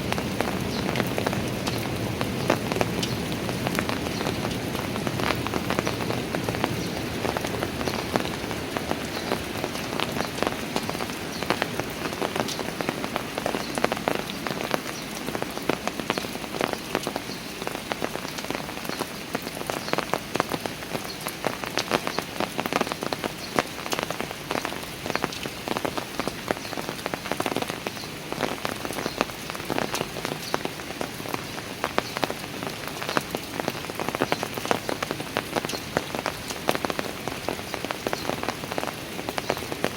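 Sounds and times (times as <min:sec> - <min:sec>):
rain falling on stairs: 0:00.0 - 0:39.9.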